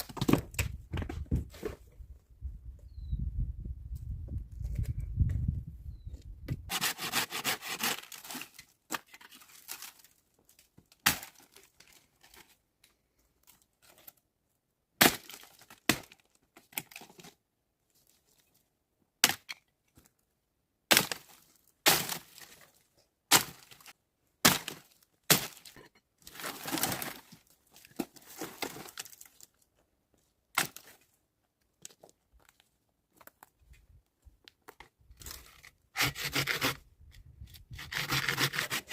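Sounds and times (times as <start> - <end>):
wood splintering and scraping: 6.7 - 12.5, 23.3 - 29.4, 35.1 - 38.9
dry wood cracking and snapping: 7.7 - 12.5, 23.3 - 29.6.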